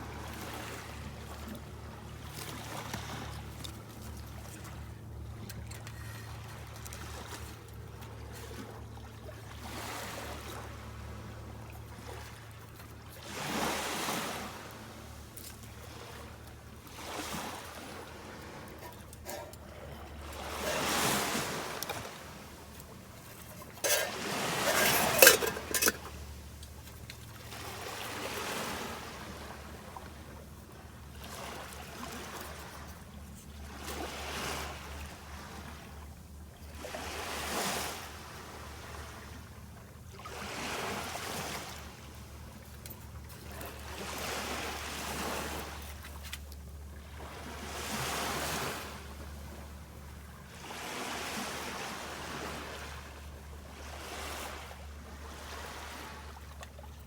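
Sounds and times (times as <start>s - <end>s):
small waves washing on sand: 0.0s - 4.9s, 5.7s - 35.9s, 36.7s - 39.5s, 40.1s - 49.7s, 50.5s - 57.0s.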